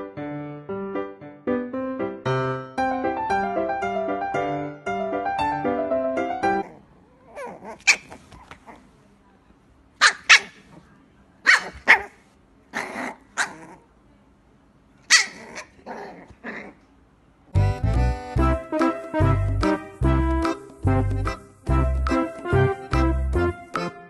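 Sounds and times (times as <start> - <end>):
puppy growling: 6.6 - 8.9, 12.7 - 13.9, 15.1 - 16.8
puppy yapping: 6.6 - 8.9, 10.0 - 10.8, 11.4 - 13.8, 15.1 - 16.8.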